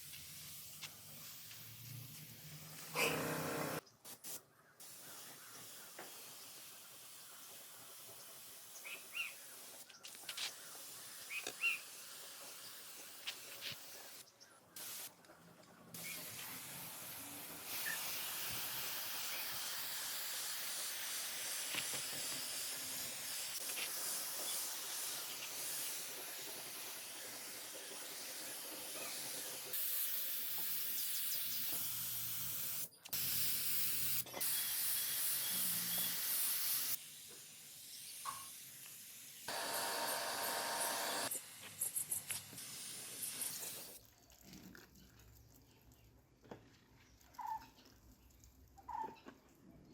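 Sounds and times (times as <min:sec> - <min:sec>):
hissing spray: 0:14.8 - 0:15.1, 0:16.0 - 0:44.0.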